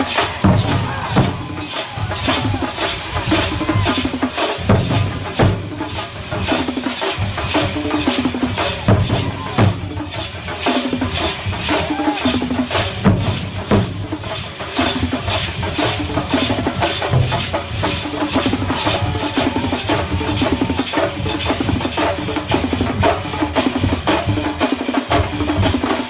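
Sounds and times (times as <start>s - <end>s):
drums and cymbal hits: 0.0s - 26.0s.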